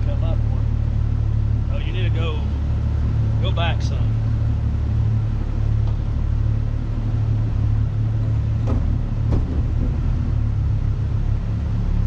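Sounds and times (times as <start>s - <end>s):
vehicle engine rumbling: 0.0s - 12.0s
brief knocks: 8.6s - 10.2s.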